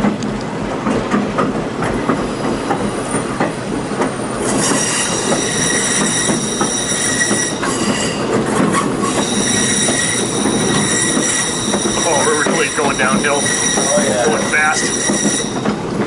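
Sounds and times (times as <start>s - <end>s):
train cars rumbling and clicking: 0.0s - 16.0s
train wheels squealing: 2.1s - 16.0s.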